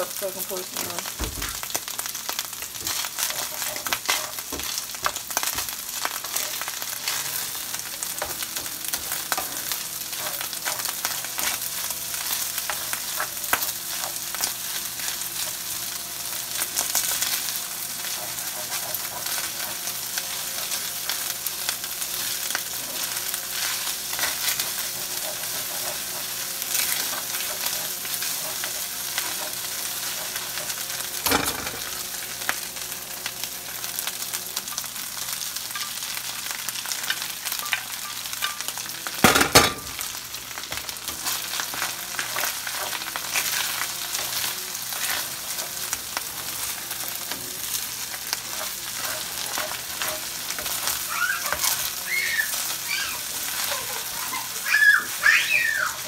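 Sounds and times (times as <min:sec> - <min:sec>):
rice sizzling in a skillet: 0:00.0 - 0:56.0
spoon scraping and knocking pan: 0:02.6 - 0:15.8, 0:16.5 - 0:21.2, 0:22.1 - 0:32.0, 0:36.9 - 0:51.9.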